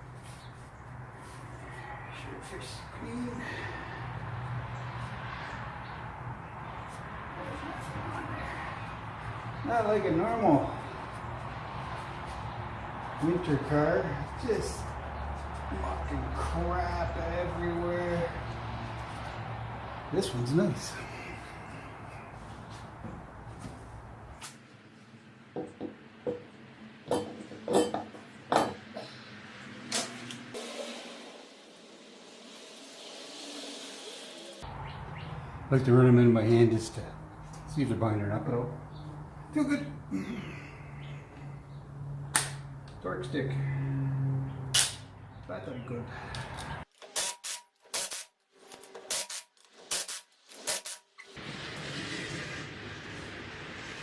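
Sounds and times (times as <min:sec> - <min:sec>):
pneumatic impact wrench bursts: 0:47.0 - 0:51.1.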